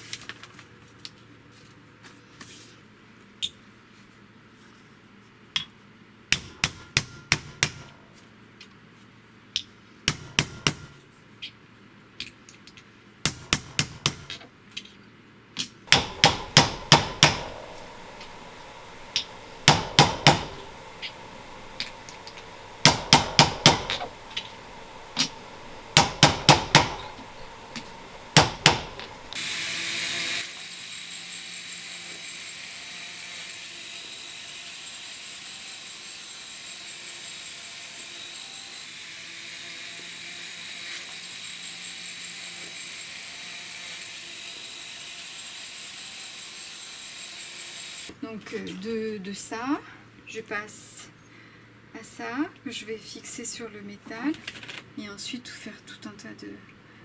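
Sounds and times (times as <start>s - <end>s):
small hammer striking brass: 15.9s - 29.4s
small power tool whirring: 15.9s - 48.2s.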